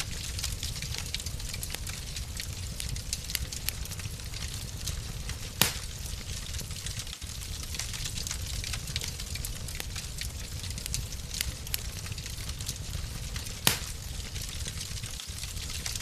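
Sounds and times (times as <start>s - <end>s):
wood fire crackling: 0.0s - 16.0s
loud fire pop: 5.6s - 5.9s, 13.6s - 14.0s.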